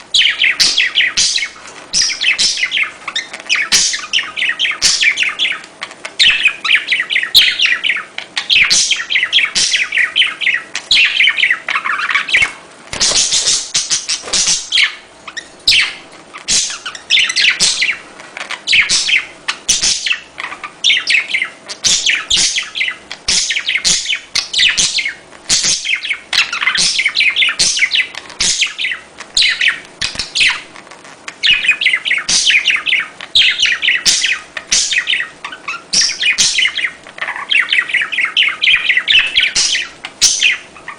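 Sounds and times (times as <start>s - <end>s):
budgerigars chattering and chirping: 0.1s - 30.7s, 31.3s - 40.9s.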